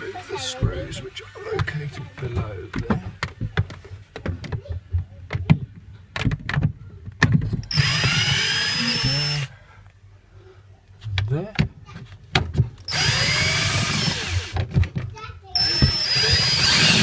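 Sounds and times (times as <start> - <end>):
handling knocks and clicks: 1.6 - 8.2, 14.6 - 16.0
power drill running: 7.7 - 9.5, 12.9 - 14.6, 15.6 - 17.0.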